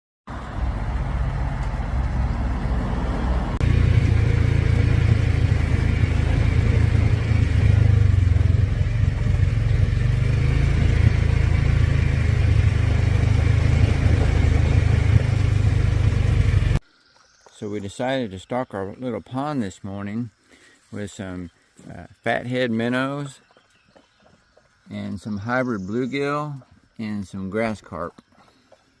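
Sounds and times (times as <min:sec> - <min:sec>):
vehicle engine and road rumble: 0:00.3 - 0:17.7.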